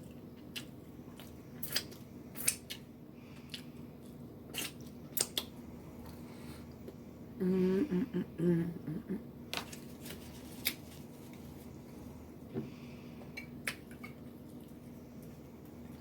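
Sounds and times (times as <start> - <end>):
low room hum: 0.0 - 16.0
woman humming: 7.4 - 9.3.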